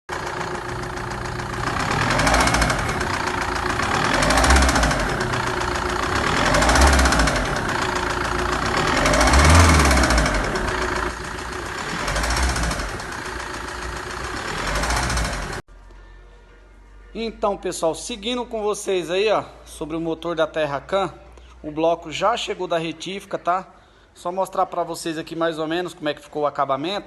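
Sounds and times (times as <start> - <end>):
diesel engine knocking when revved: 0.1 - 15.6.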